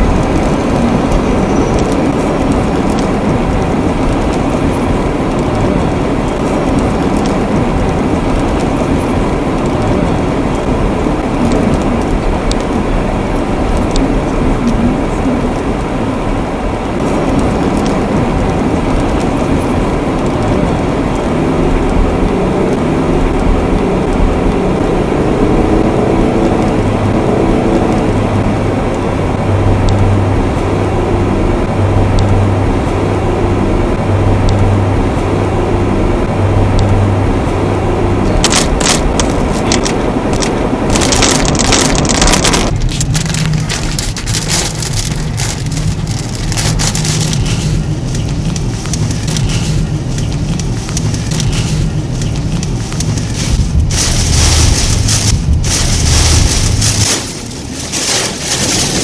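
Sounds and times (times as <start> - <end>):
heavy rain on a car: 0.0 - 59.0
low engine hum: 0.0 - 59.0
road noise: 0.0 - 59.0
sharp clicks: 38.4 - 54.6.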